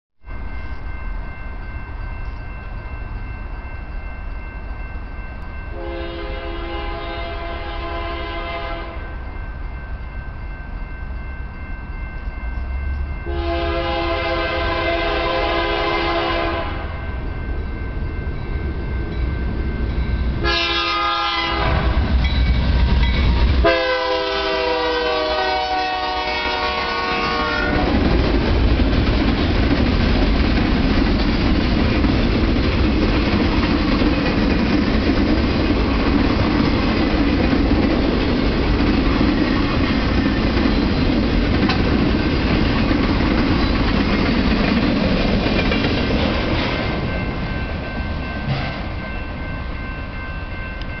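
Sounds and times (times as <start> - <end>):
locomotive air horn blasts: 5.7 - 9.2, 13.3 - 17.0, 20.4 - 22.1, 23.6 - 28.0
train wheels clickety-clack: 25.9 - 49.4.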